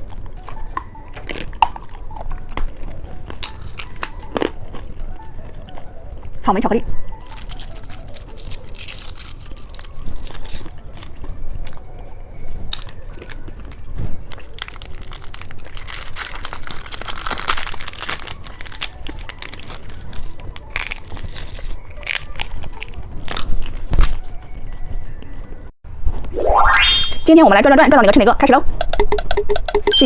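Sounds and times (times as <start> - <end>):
candy being bitten and crunched: 0.0 - 6.4, 7.1 - 11.9, 12.6 - 24.2.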